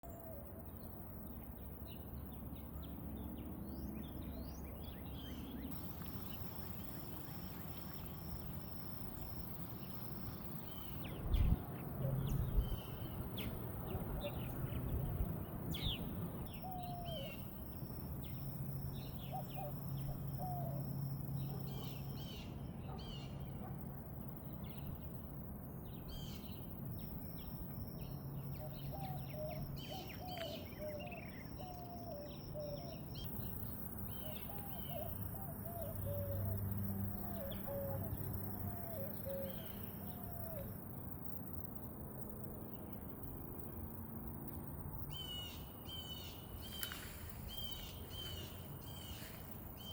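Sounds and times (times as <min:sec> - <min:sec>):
birds chirping: 0:01.9 - 0:23.7, 0:45.1 - 0:49.9.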